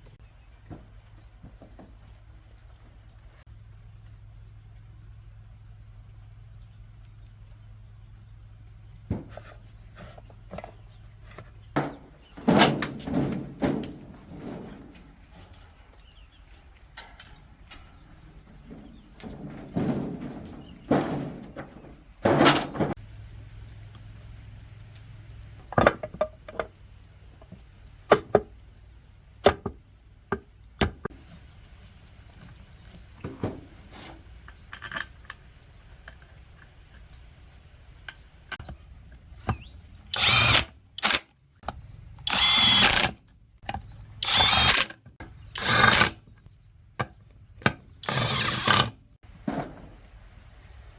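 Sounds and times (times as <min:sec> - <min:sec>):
tools and metal parts clicking: 0:09.4 - 0:23.0, 0:31.9 - 0:37.3, 0:38.0 - 0:49.0.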